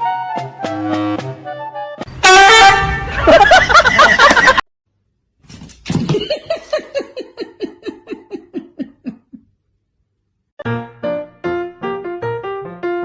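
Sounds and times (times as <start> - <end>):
person laughing: 3.1 - 4.6, 6.1 - 9.5.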